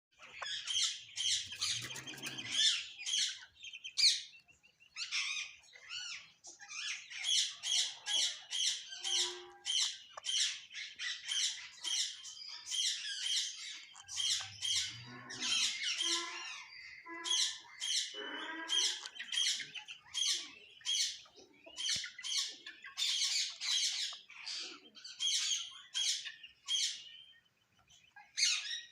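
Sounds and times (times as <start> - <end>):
parakeet chattering: 0.2 - 3.4, 5.1 - 14.9, 17.2 - 26.9
parakeet squawking: 0.2 - 3.4, 5.0 - 27.1.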